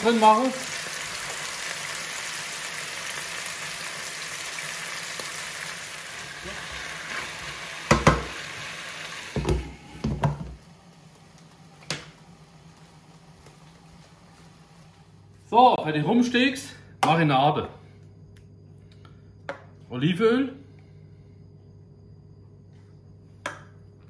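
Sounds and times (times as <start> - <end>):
potatoes sizzling in oil: 0.0 - 16.0.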